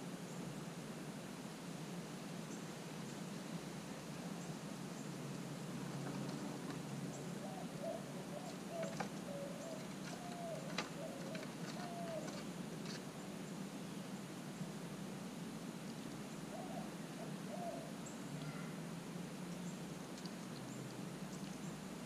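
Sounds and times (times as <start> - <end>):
squirrel claws scratching on wood: 8.5 - 13.1.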